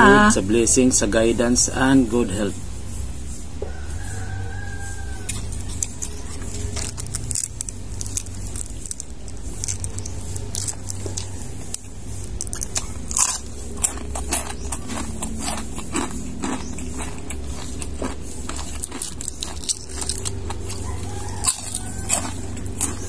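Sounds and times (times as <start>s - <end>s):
crunching and chewing: 3.7s - 23.0s.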